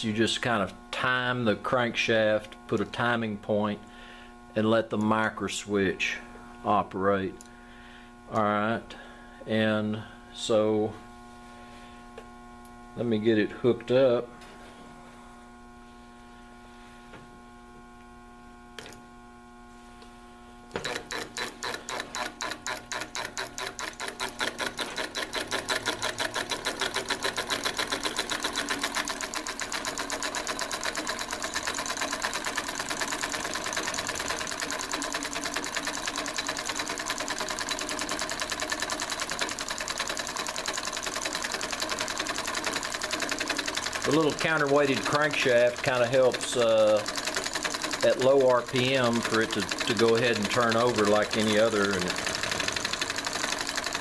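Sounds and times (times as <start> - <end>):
steady hum: 0.0 - 54.0
solenoid engine clattering: 20.8 - 54.0.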